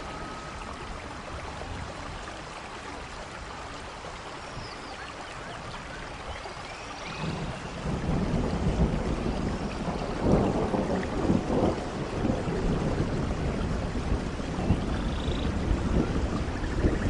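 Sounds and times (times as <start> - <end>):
rain: 0.0 - 17.0
low rolling thunder: 7.1 - 17.0.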